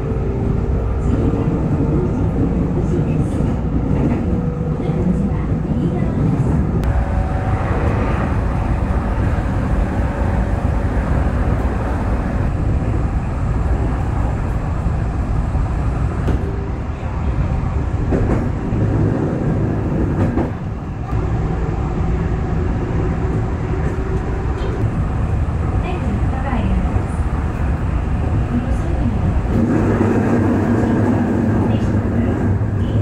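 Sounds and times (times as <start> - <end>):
wheels rumbling on rail: 0.0 - 33.0.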